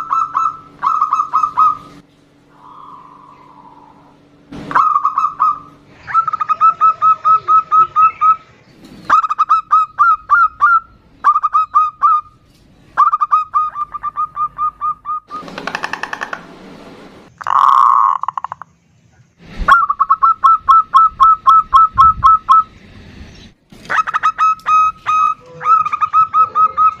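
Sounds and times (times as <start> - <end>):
doves calling clipped notes: 0.0 - 18.8, 19.6 - 27.0
harsh buzzy rattle: 15.4 - 18.6.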